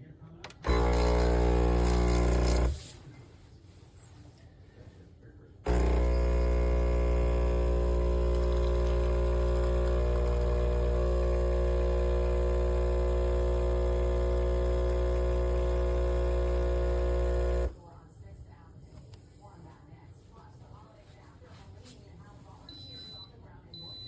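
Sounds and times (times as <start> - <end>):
espresso machine pump buzzing: 0.6 - 2.8, 5.6 - 17.8.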